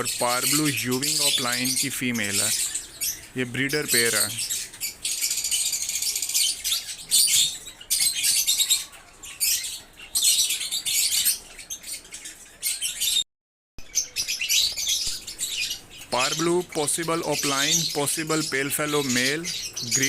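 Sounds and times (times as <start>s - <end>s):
lovebirds chirping: 0.0s - 20.0s.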